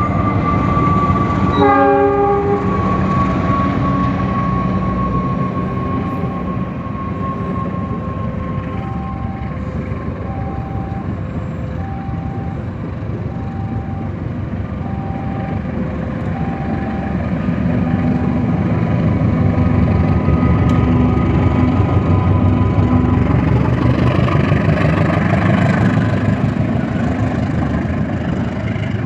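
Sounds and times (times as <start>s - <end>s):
two-tone electronic warning signal: 0.0s - 14.2s, 14.8s - 18.9s
diesel train rumbling: 0.0s - 29.0s.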